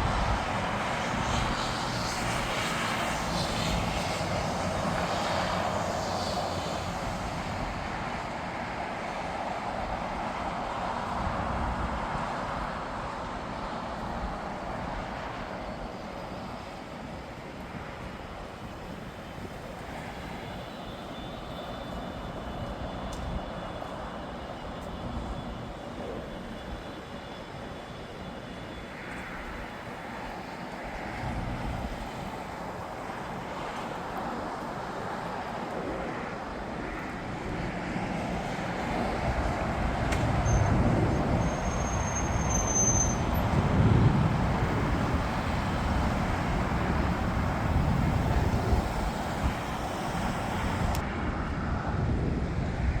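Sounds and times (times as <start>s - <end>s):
jet engines rumbling: 0.0s - 53.0s
faint high whine: 14.4s - 34.2s, 40.1s - 51.0s.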